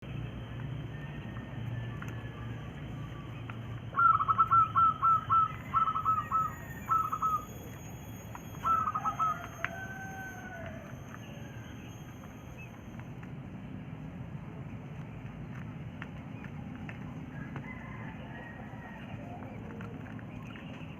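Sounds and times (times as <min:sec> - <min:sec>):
quail chirping: 0:02.0 - 0:13.0.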